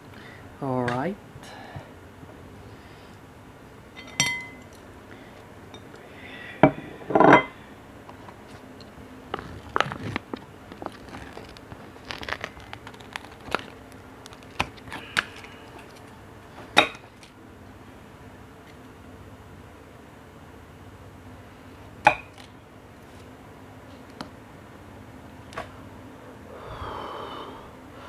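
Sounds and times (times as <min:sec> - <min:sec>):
dishes and utensils clinking: 0:04.0 - 0:04.7, 0:07.1 - 0:07.6.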